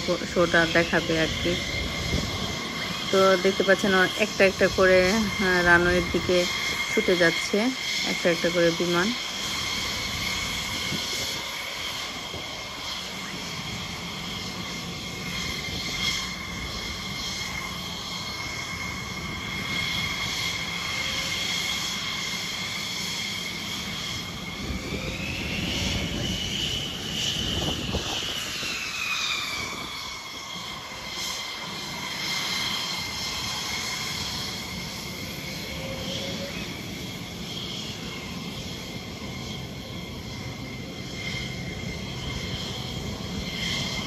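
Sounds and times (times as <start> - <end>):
jet engines whining: 0.0 - 44.0.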